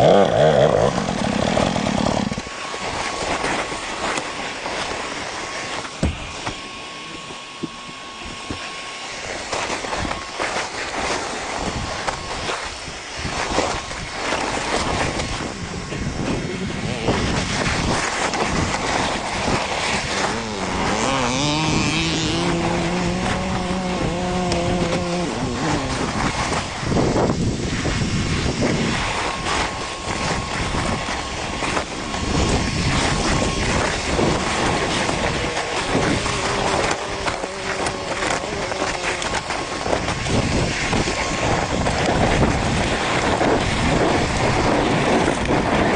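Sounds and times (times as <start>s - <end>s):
dirt bike engine revving: 0.0s - 2.5s, 15.4s - 27.3s, 28.7s - 42.5s
rough rushing noise: 0.0s - 45.9s.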